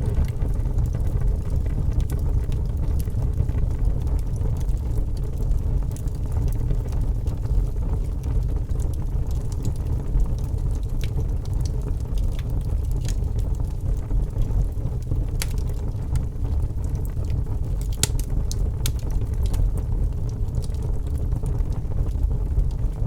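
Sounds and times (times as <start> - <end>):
fire low rumble: 0.0 - 23.0
wood fire crackling and popping: 0.0 - 23.0.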